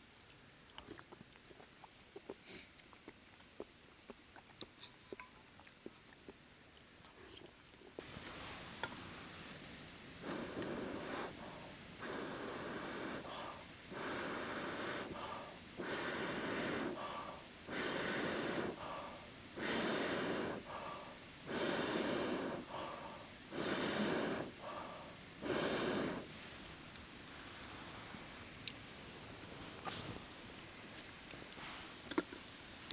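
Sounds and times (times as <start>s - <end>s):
person breathing heavily: 10.2s - 26.3s.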